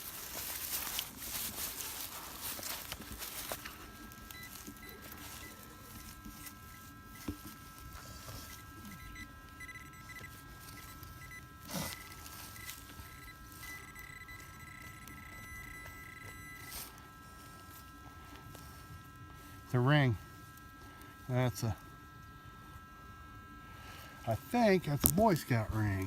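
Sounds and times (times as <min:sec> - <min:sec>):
metal detector electronic tone: 0:03.4 - 0:18.8.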